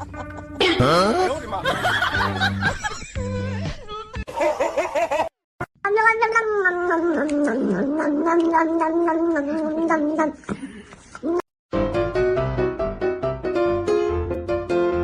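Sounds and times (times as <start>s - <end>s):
cat yowling: 5.8s - 10.2s.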